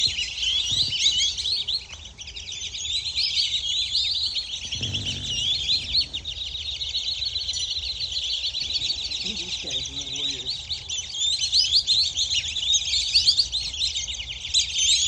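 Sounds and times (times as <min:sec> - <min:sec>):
ducks whistling: 0:00.0 - 0:15.0
low rumble: 0:04.6 - 0:06.9.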